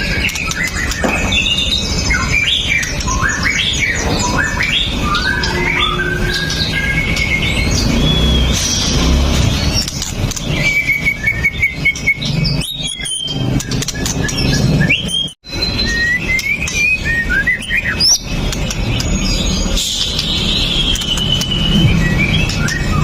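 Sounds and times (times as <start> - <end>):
bird singing: 0.0 - 23.0.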